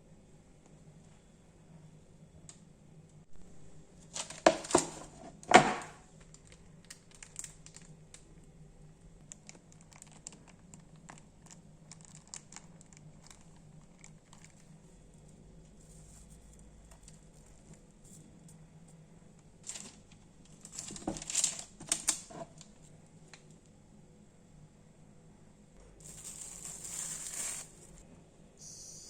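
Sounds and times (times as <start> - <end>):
crinkling and rustling: 4.0 - 8.3, 9.2 - 23.6, 26.0 - 28.0.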